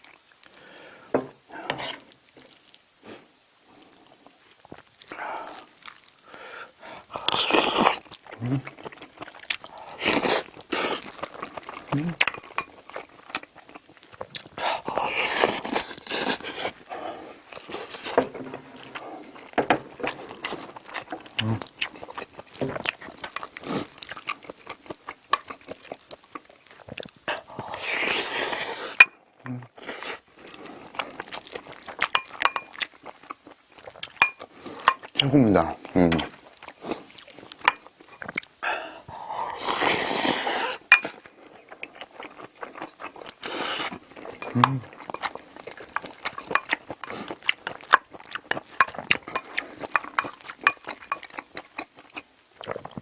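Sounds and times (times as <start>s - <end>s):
breathing: 0.5s - 1.8s, 6.2s - 7.4s, 38.6s - 39.6s
mouth eating sounds: 3.9s - 53.0s
chewing with sharp clicks: 7.1s - 27.7s, 29.0s - 38.6s, 41.0s - 53.0s.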